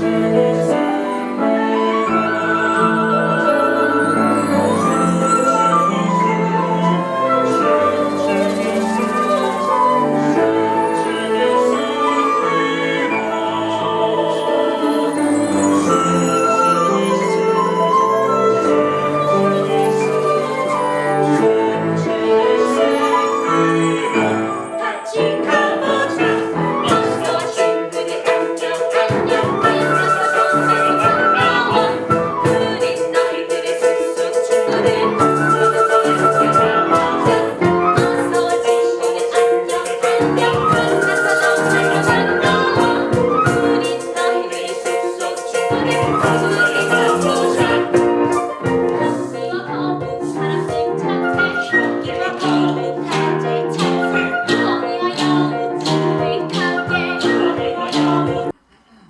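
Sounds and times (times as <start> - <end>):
rising and falling melody: 0.0 - 44.4
shaker percussion: 2.1 - 22.2, 22.9 - 58.5.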